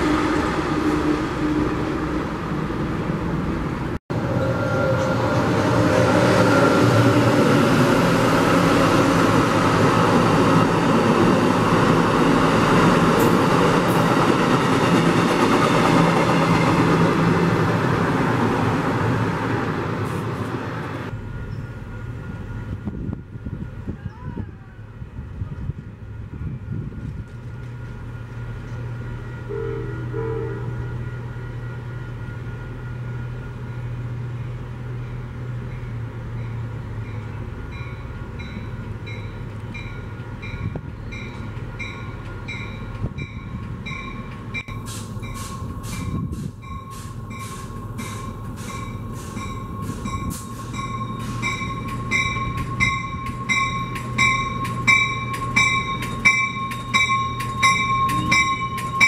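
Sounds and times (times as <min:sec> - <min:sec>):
locomotive engine humming: 0:00.0 - 0:59.0
bell ringing: 0:37.8 - 0:59.0.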